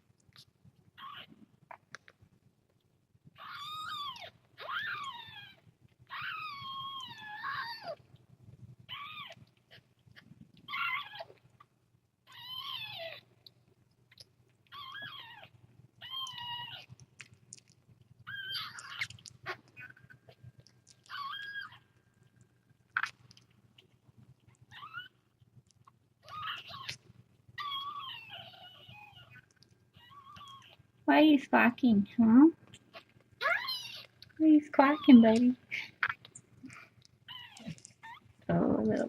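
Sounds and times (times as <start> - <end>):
kitten meowing: 14.7 - 16.8.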